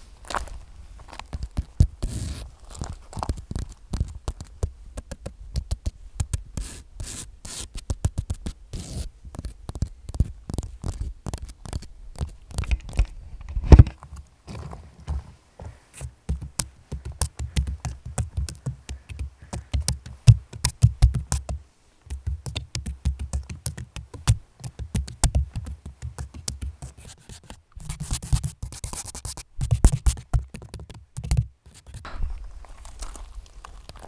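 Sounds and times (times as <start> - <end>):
scratchy rustle: 1.2 - 4.6, 6.3 - 21.4
rapid tapping and clicks: 16.3 - 27.5, 28.1 - 32.0
soft low thuds: 32.1 - 34.0.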